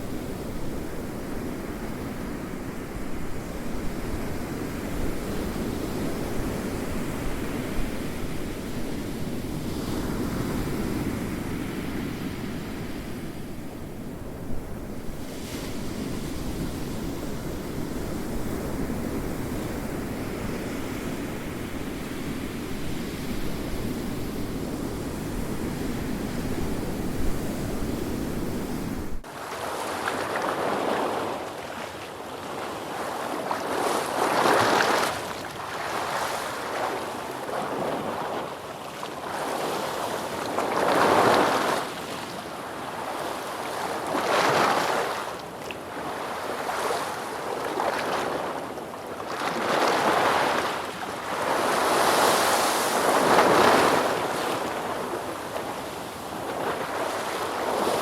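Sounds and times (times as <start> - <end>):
ocean waves breaking: 28.0 - 58.0.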